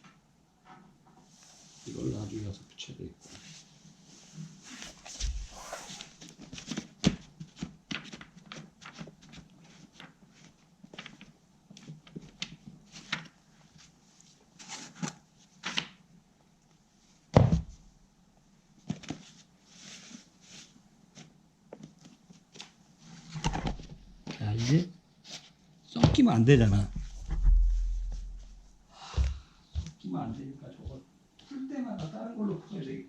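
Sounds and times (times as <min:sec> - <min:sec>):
loud knock: 0:27.0 - 0:28.2.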